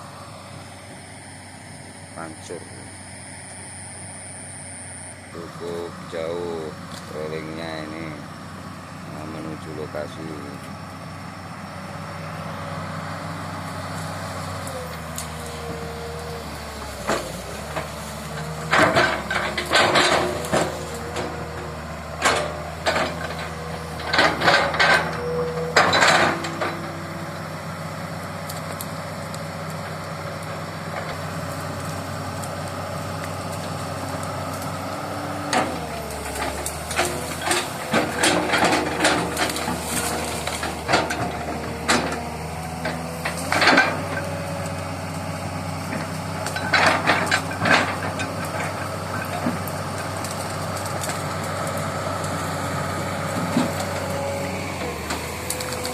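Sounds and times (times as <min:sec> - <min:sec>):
diesel engine running: 0:00.0 - 0:55.9
steel tracks clanking and squealing: 0:14.0 - 0:27.5, 0:33.7 - 0:45.2, 0:45.8 - 0:55.9.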